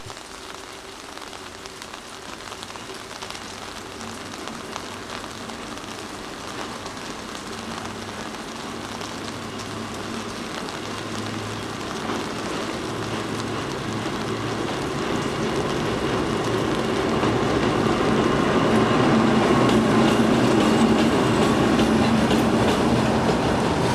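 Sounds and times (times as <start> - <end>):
electric train running: 8.6 - 23.9.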